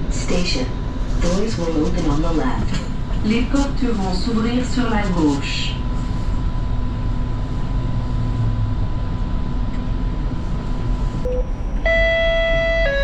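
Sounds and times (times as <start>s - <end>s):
faint whine: 0.0s - 13.0s
train equipment rumble and hum: 0.0s - 13.0s
short beep: 11.2s - 13.0s.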